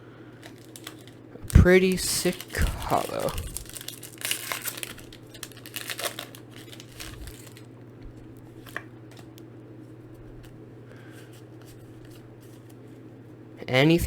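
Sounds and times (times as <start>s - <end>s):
low steady hum: 0.0s - 14.0s
foil wrapper crinkling: 0.4s - 9.4s.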